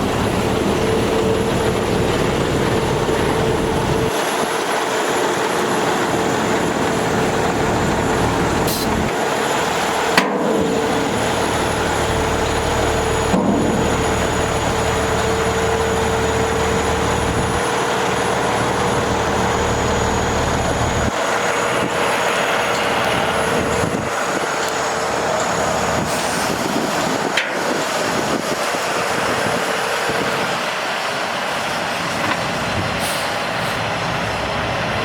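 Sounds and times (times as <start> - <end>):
steady whine: 0.0 - 30.4
diesel truck engine running: 0.0 - 35.0.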